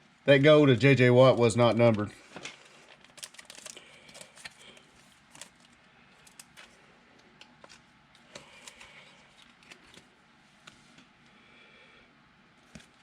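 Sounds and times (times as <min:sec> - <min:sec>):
cards and wrappers rustling: 0:01.8 - 0:11.0.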